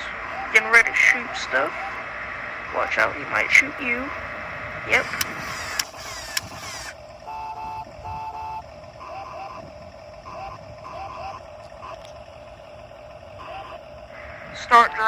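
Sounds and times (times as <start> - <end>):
electronic beeps and chirps: 0.0 - 4.2, 4.8 - 12.2, 13.2 - 15.0
crackling noise with clicks: 0.0 - 15.0
steady high hum: 0.0 - 15.0
short electronic tones: 4.8 - 12.1, 13.4 - 15.0.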